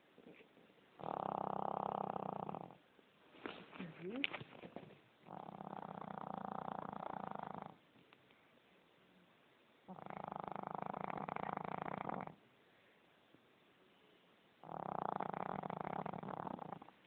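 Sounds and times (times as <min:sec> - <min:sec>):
dog snoring: 0:01.0 - 0:02.8, 0:05.2 - 0:07.8, 0:09.8 - 0:12.4, 0:14.6 - 0:17.0.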